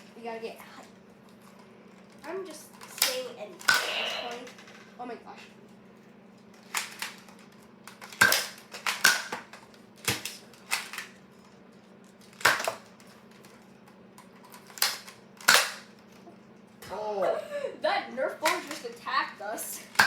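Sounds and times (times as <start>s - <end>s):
foam darts hitting targets: 3.0s - 4.5s, 8.1s - 11.0s, 12.4s - 12.9s, 14.8s - 15.9s
toy blaster firing: 3.0s - 4.6s, 8.0s - 9.4s, 14.8s - 15.9s.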